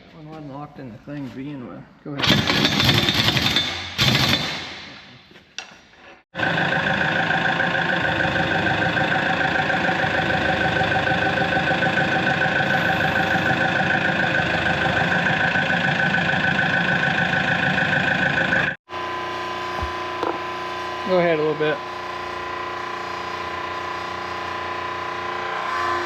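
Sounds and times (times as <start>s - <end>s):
hydraulic press power unit drone: 6.4s - 26.0s.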